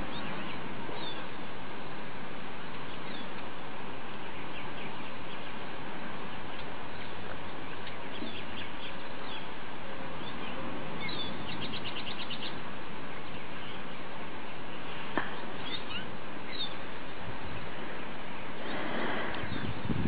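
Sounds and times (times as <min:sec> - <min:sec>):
small birds chirping: 0:00.0 - 0:01.7, 0:02.4 - 0:20.0
steady background hiss: 0:00.0 - 0:20.0
bird trill: 0:02.8 - 0:03.4, 0:10.2 - 0:12.6, 0:14.5 - 0:16.8.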